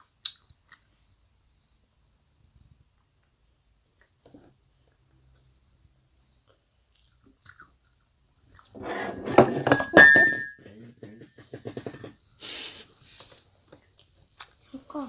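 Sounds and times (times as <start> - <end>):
wet chewing and smacking: 0.0 - 1.1, 2.8 - 8.8, 13.2 - 15.0.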